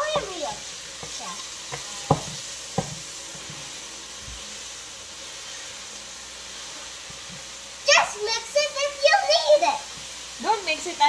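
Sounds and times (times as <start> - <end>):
beef sizzling in a wok: 0.0 - 11.0
wooden spatulas knocking on pan: 1.0 - 3.6.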